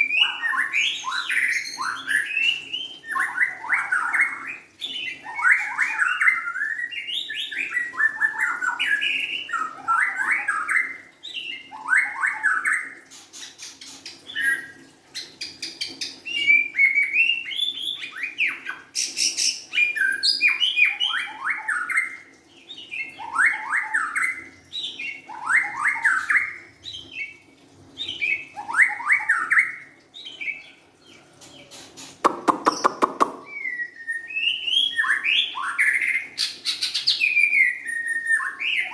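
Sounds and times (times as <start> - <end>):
bird whistling song: 16.0 - 24.4, 28.0 - 30.7, 31.7 - 38.9
bird rapid clicking notes: 32.3 - 33.5.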